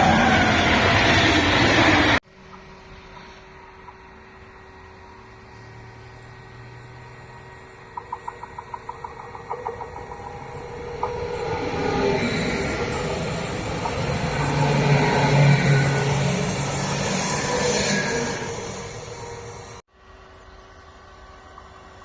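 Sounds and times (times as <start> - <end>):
train rumble and rush: 0.0 - 19.9
train wheels clicking: 7.8 - 19.8.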